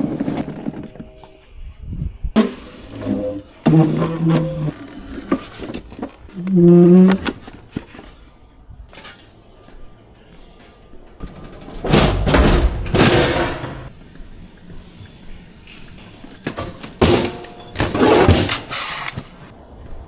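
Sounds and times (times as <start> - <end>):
equipment bumping and clattering: 11.2 - 13.9, 16.4 - 18.9.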